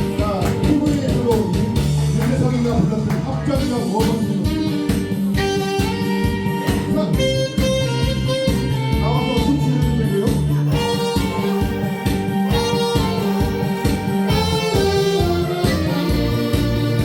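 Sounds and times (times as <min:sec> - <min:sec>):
band playing bass guitar and drums: 0:00.0 - 0:17.0
saxophone melody: 0:03.6 - 0:17.0.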